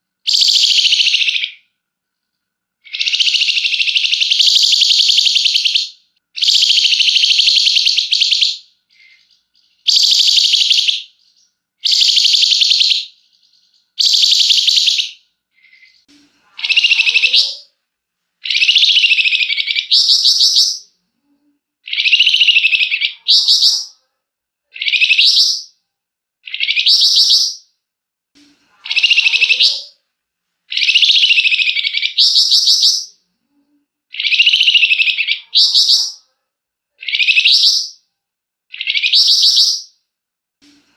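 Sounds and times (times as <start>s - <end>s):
songbird singing buzzy trills: 2.8s - 17.6s, 18.4s - 20.8s, 26.4s - 27.7s, 30.7s - 33.1s, 38.7s - 40.0s.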